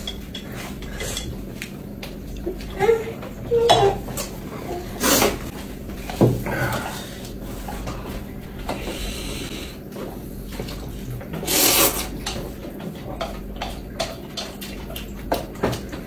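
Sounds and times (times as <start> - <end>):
bowls and utensils clicking: 0.0 - 1.7.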